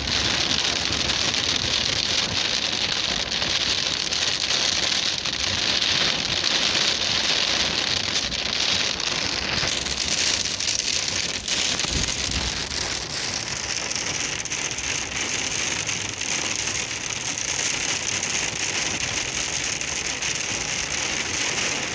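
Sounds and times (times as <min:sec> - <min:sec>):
heavy rain falling: 0:00.0 - 0:21.9.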